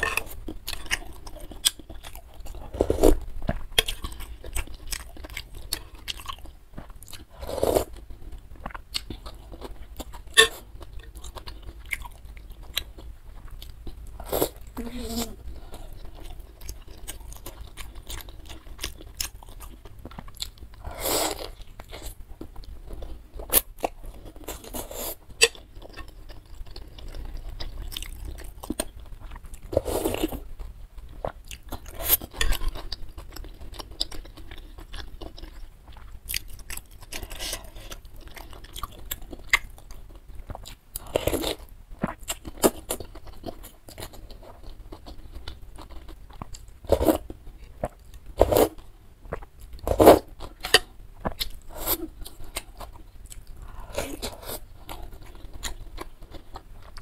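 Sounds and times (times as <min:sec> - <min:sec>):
chewing and biting food: 0:25.4 - 0:57.0.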